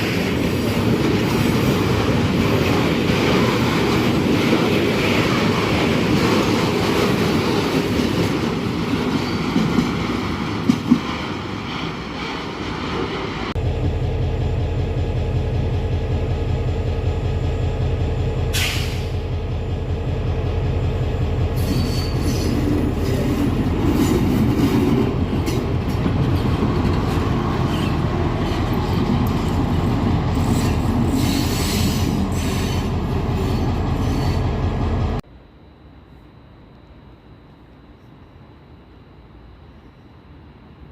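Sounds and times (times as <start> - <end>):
train low drone: 0.0 - 40.9
high wheel squeal: 21.6 - 23.4.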